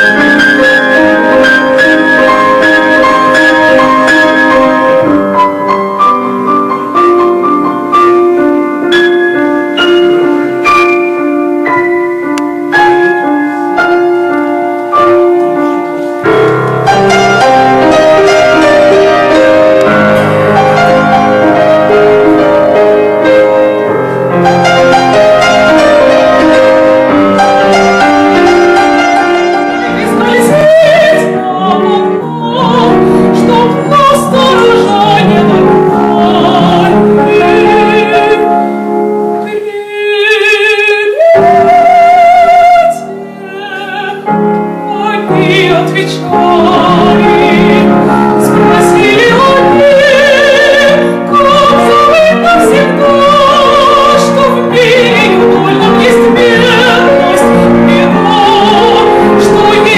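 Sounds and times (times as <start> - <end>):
piano accompaniment: 0.0 - 59.9
person singing with vibrato: 16.8 - 59.9.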